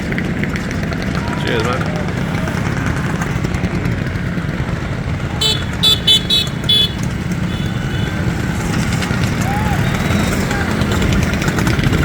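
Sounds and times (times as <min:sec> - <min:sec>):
motorcycle engines rumbling: 0:00.0 - 0:12.0
high-pitched horn toots: 0:05.4 - 0:08.3.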